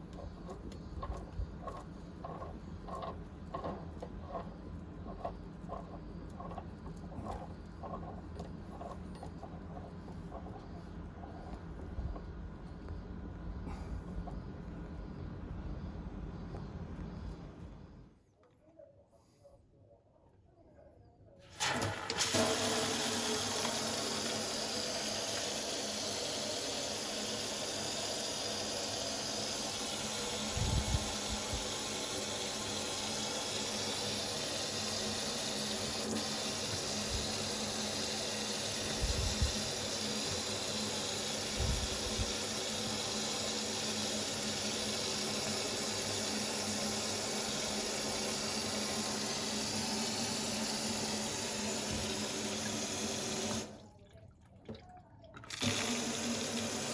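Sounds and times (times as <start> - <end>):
tap water running into sink: 21.6 - 53.8, 54.6 - 56.9.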